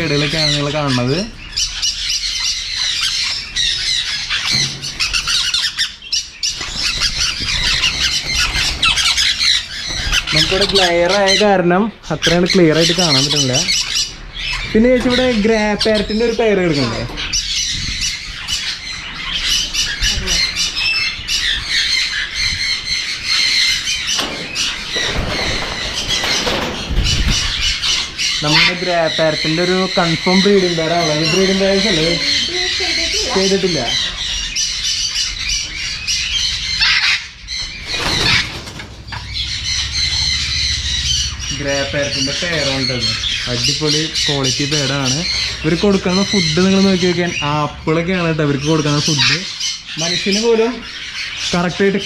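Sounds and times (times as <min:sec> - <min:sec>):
parrots squawking and screeching: 0:00.0 - 0:52.0
low bumps and rustling: 0:23.6 - 0:28.4.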